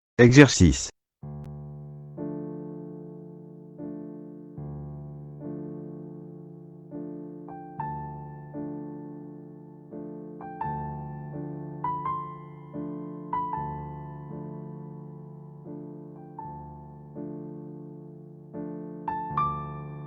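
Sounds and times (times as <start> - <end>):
slow electric piano chords: 1.4 - 20.0.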